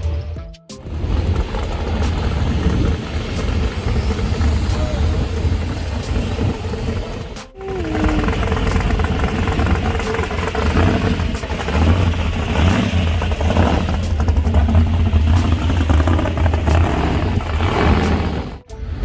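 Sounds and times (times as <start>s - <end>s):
rattling: 0.0s - 19.0s
vehicle engine rumbling: 0.0s - 19.0s.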